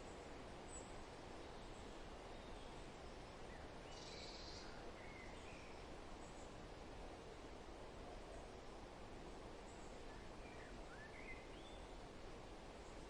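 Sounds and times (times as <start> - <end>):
faint bird chirps: 0.0 - 6.5, 9.6 - 12.0
forest wind: 0.0 - 13.0.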